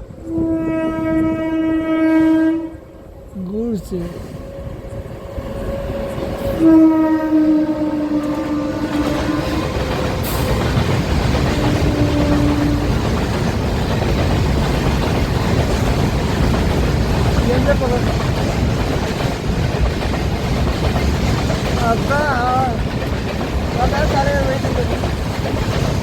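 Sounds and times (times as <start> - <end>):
train rumbling past: 0.0 - 26.0
train horn blasts: 0.1 - 3.1, 4.0 - 10.4, 11.5 - 13.0.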